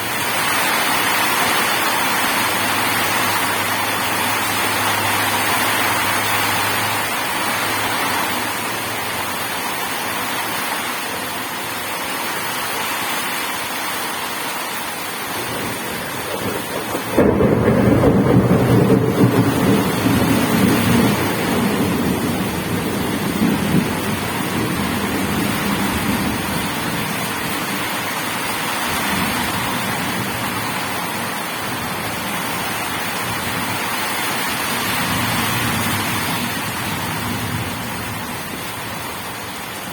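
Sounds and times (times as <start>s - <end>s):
steady rain: 0.0s - 39.9s
thunder crack and rumble: 15.3s - 39.9s.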